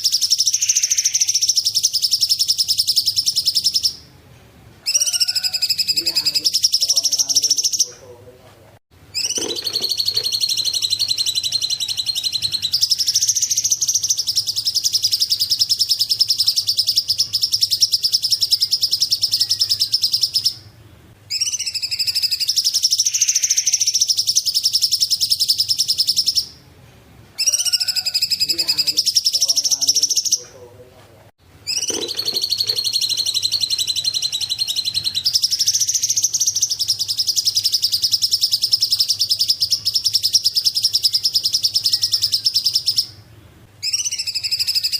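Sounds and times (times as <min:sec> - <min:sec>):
songbird singing rapid high notes: 0:00.0 - 0:04.0, 0:04.9 - 0:08.0, 0:09.1 - 0:20.6, 0:27.4 - 0:30.6, 0:31.6 - 0:43.2.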